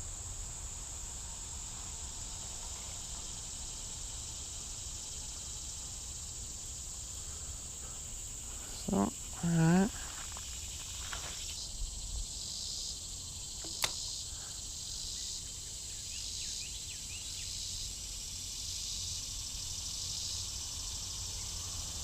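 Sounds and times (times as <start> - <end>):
insect chorus buzzing: 0.0 - 22.0
sharp click: 13.6 - 14.1.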